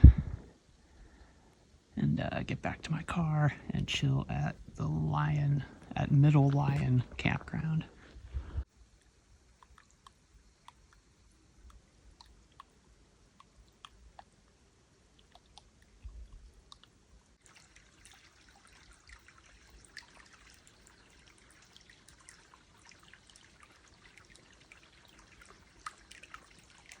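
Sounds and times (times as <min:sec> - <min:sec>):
low thumps: 0:00.0 - 0:00.5
water trickling and dripping: 0:08.6 - 0:27.0.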